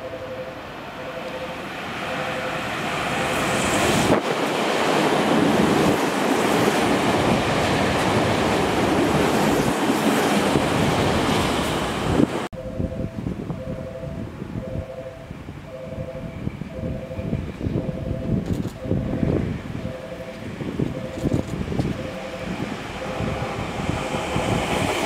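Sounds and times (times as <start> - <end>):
repeating two-note tone: 0.0 - 3.5, 12.6 - 23.8
electric train passing: 0.0 - 25.0.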